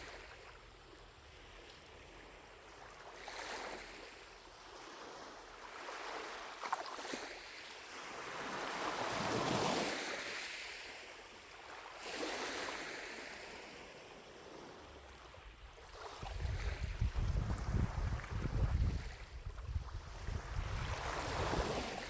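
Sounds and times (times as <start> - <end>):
lake waves washing onto shore: 3.1 - 22.0
wind buffeting microphone: 16.1 - 22.0.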